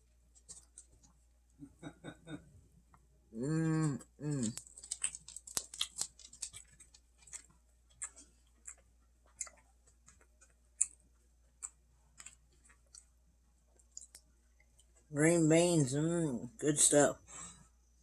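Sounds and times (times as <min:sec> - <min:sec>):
wet chewing mouth clicks: 0:04.0 - 0:11.0.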